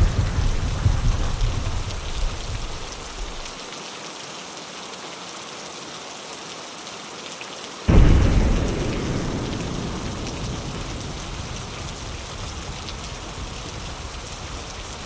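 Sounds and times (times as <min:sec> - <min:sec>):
thunder rumble: 0:00.0 - 0:03.5, 0:07.9 - 0:15.0
rain on a window: 0:00.0 - 0:15.0.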